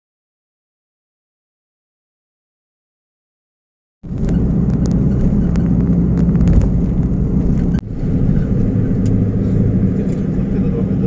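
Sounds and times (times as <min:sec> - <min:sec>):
vehicle engine drone: 0:04.0 - 0:11.0.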